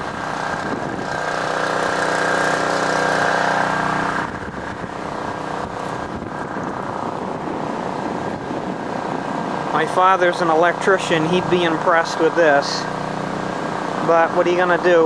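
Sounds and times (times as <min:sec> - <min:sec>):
generator engine running: 0:00.0 - 0:15.0.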